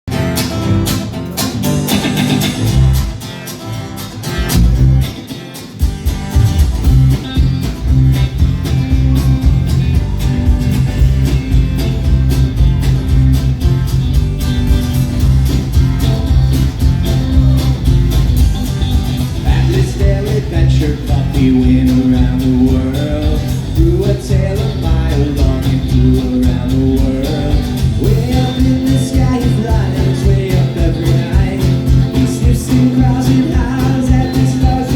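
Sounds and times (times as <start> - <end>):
live band playing: 0.1 - 34.9
person singing: 19.4 - 34.9.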